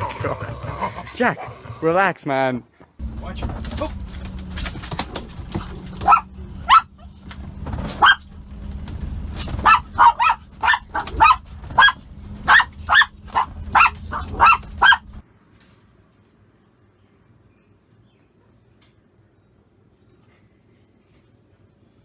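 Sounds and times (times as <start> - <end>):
dog barking and yelping: 4.1 - 15.2.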